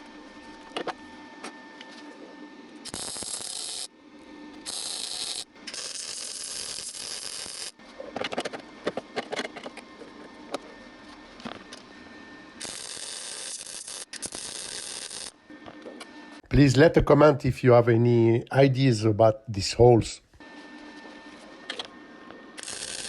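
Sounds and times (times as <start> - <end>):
welding arc crackling hiss: 2.8 - 3.9, 4.7 - 7.8, 12.6 - 15.4, 22.6 - 23.0.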